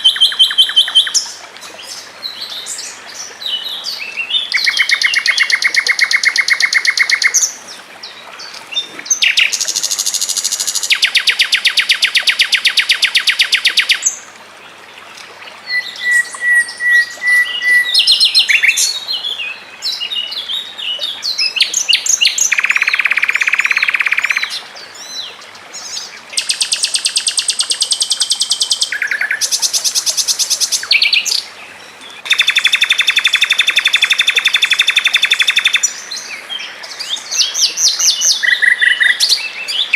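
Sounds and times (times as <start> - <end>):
songbirds trilling: 0.0 - 14.2.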